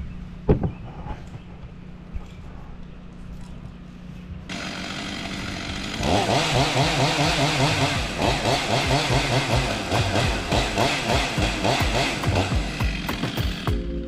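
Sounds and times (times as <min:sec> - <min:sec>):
chainsaw idling and revving: 0:04.5 - 0:13.8.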